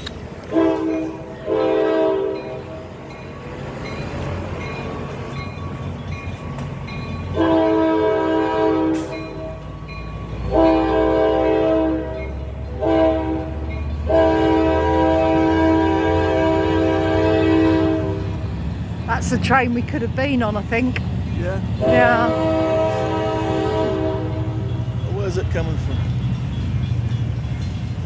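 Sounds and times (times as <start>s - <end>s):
train rumbling: 0.0s - 28.0s
train air horn blasts: 0.5s - 2.6s, 7.4s - 9.1s, 10.5s - 18.4s, 21.8s - 25.0s.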